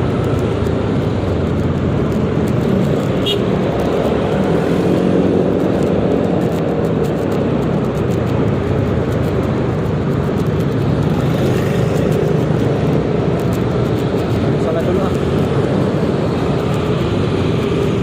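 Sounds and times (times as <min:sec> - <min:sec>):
road and wind noise: 0:00.0 - 0:18.0.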